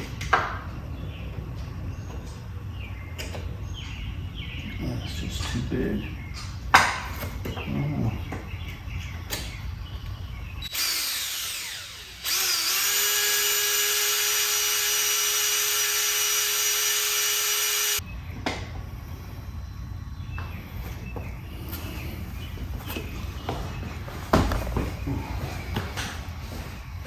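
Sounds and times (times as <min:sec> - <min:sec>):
electric drill drilling: 0:10.6 - 0:18.0.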